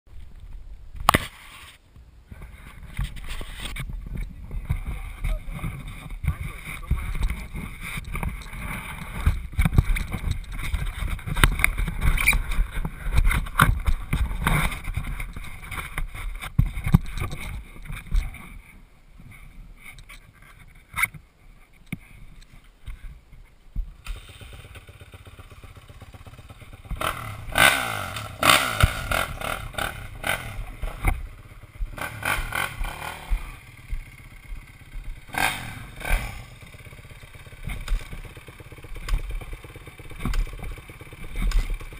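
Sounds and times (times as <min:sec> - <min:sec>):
motocross bike engine revving: 0:24.0 - 0:41.9.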